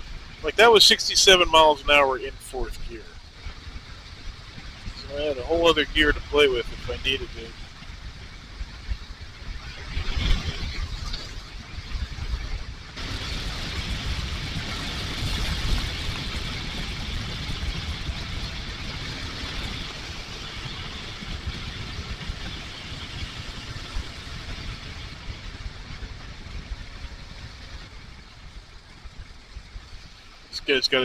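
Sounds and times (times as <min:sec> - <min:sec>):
wind rush: 0:00.0 - 0:31.0
motorcycle engine running: 0:11.4 - 0:30.5.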